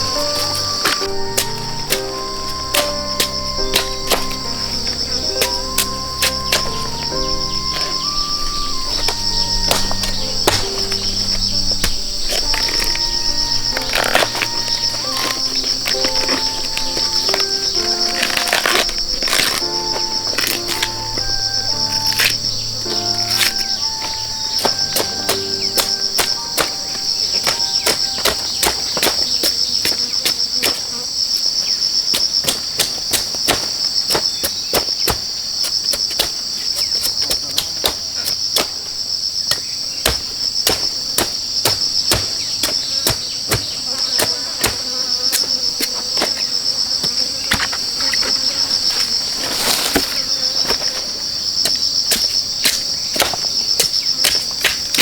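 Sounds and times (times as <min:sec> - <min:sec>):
insect chorus buzzing: 0:00.0 - 0:55.0.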